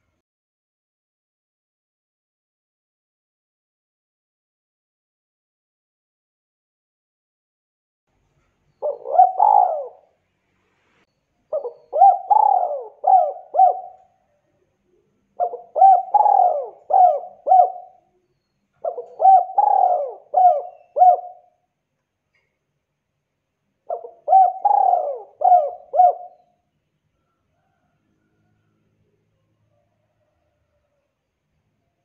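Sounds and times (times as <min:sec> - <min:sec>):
dove cooing: 0:08.8 - 0:10.2, 0:11.5 - 0:14.2, 0:14.9 - 0:18.2, 0:18.8 - 0:21.6, 0:23.9 - 0:26.5.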